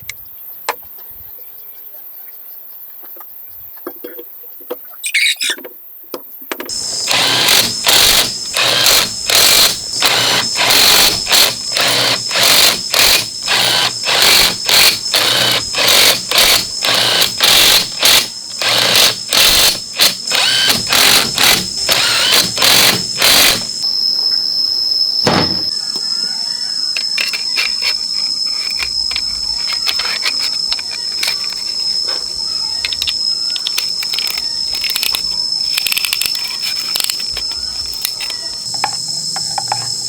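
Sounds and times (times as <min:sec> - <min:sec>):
power tool whirring bursts: 0:06.7 - 0:23.8
steady high whine: 0:06.7 - 0:40.0.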